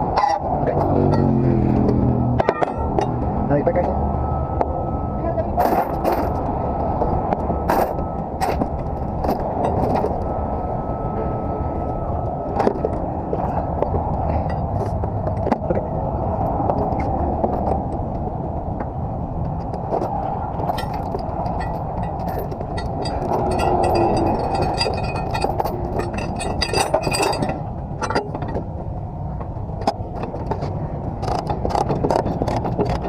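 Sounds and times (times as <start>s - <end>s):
low outdoor rumble: 0.0s - 33.0s
metal chains clinking: 20.7s - 28.6s.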